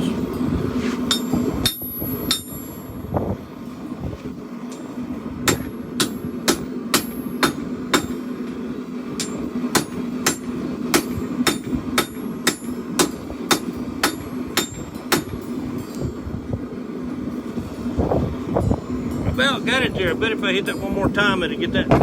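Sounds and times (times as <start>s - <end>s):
steady low hum: 0.0s - 22.0s
hammer striking steel on anvil: 1.0s - 2.9s, 4.7s - 8.6s, 9.2s - 16.0s.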